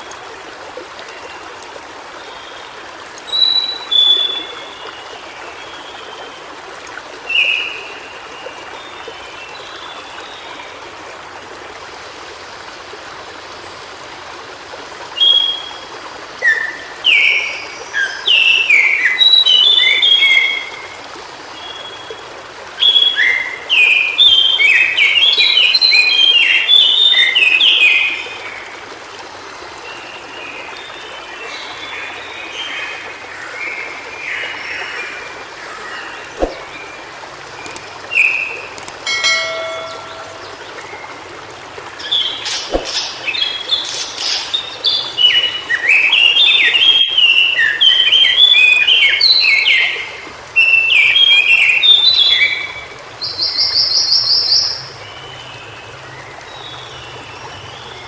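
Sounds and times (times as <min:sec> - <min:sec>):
stream rushing: 0:00.0 - 0:58.0
bird singing high notes: 0:39.1 - 0:41.2.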